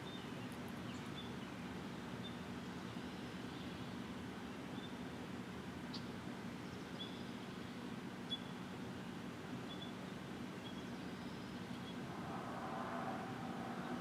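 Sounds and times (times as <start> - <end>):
steady low hum: 11.8 - 14.0.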